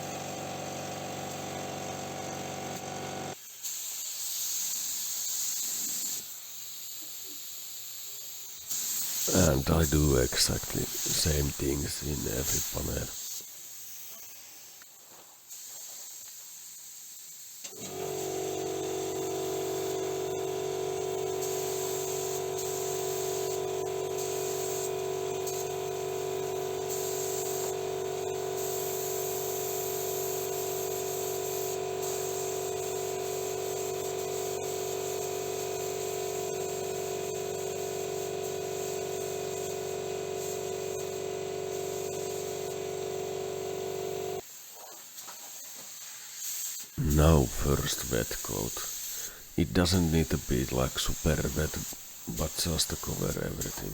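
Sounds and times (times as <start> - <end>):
spray gun hissing: 8.7 - 13.4, 19.2 - 20.1, 21.4 - 25.8, 26.8 - 27.8, 28.5 - 44.4, 45.9 - 53.9
steady hum: 9.3 - 13.1.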